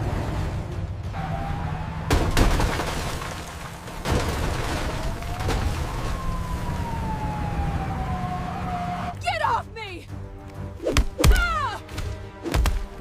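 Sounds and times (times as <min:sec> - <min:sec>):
siren wailing: 0:04.9 - 0:09.2.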